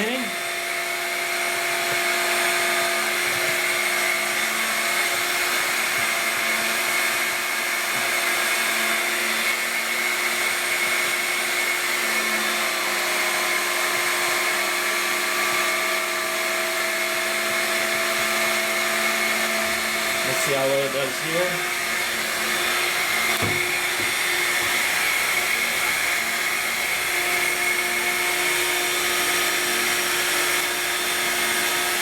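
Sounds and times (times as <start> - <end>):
stick vacuum motor whine: 0.0 - 32.0.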